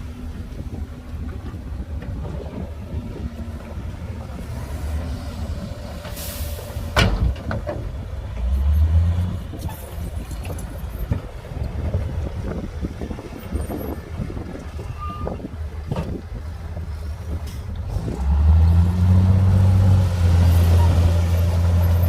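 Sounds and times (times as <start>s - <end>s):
diesel machinery rumbling: 0.0s - 22.0s
engine revving: 17.9s - 22.0s.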